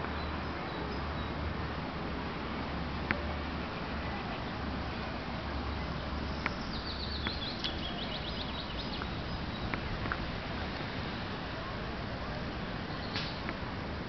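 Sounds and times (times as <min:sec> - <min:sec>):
outdoor hiss: 0:03.8 - 0:14.0
songbird trill: 0:05.6 - 0:10.3, 0:12.9 - 0:13.5.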